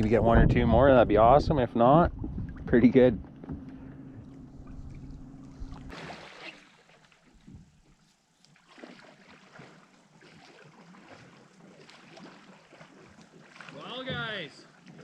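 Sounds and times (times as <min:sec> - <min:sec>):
steady low hum: 0:00.0 - 0:05.9
water lapping around hull: 0:00.0 - 0:15.0.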